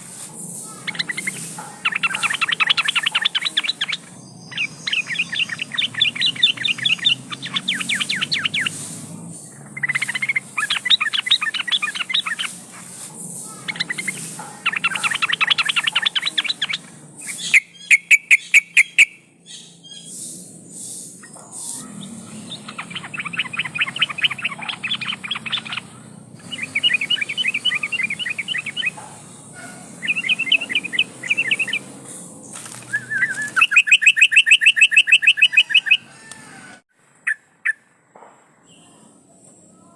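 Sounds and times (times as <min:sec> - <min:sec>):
bulbul chattering calls: 0:00.0 - 0:36.7.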